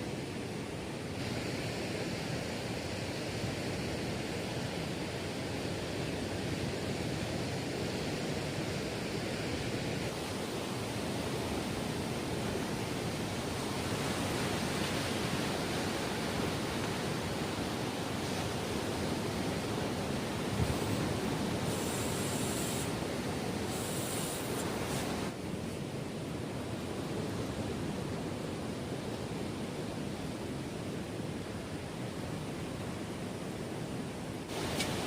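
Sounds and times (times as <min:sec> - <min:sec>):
surf on a beach: 0:00.0 - 0:35.0
wind: 0:00.0 - 0:35.0.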